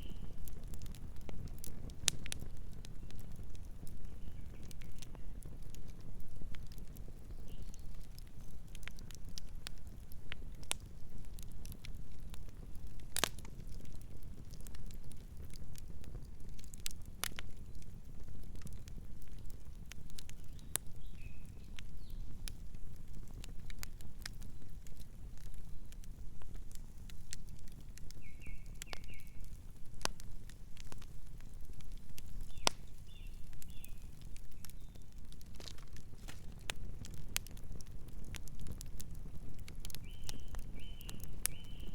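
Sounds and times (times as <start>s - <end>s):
burning wood crackling and popping: 0.0s - 41.9s
low rumble of flames: 0.0s - 41.9s
night birds chirping: 4.0s - 5.4s, 20.4s - 22.3s, 28.2s - 29.4s, 32.4s - 35.1s, 40.0s - 41.9s.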